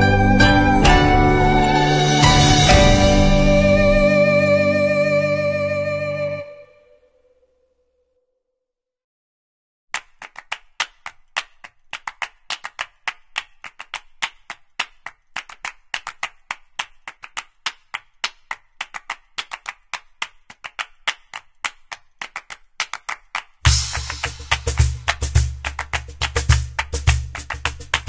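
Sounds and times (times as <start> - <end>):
sharp percussive claps: 9.9 - 28.0.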